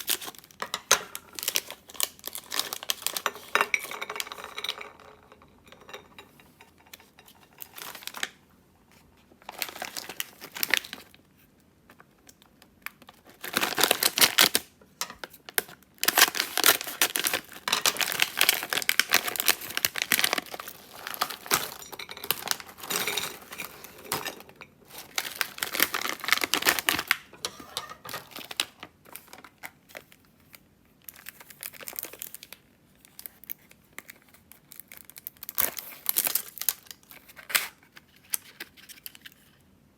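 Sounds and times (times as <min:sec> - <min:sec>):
packaging crinkling and tearing: 0:00.0 - 0:03.5, 0:07.6 - 0:08.3, 0:09.4 - 0:11.2, 0:12.8 - 0:24.3, 0:24.9 - 0:27.3, 0:28.0 - 0:39.6.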